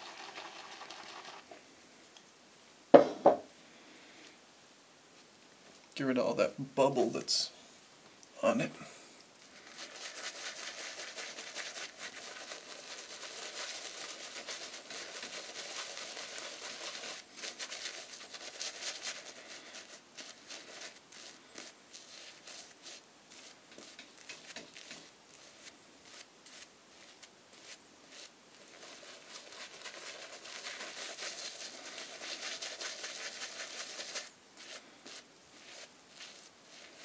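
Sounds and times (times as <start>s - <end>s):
shaving brush swishing in lather: 9.6s - 37.0s.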